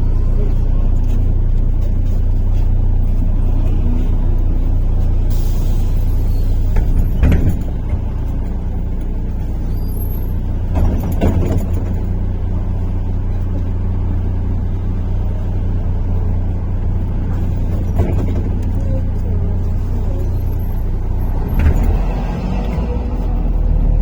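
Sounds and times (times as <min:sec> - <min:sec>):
bus engine and road drone: 0:00.0 - 0:24.0
rattling knocks: 0:06.7 - 0:08.2.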